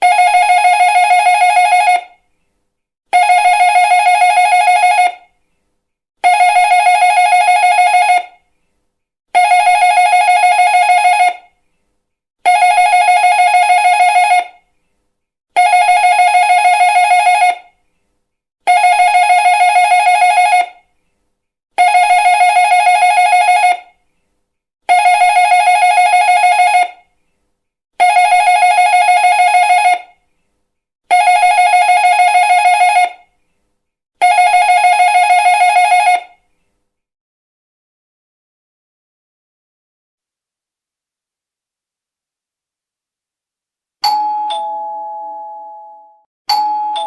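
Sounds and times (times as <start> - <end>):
doorbell ringing trill: 44.0 - 47.0.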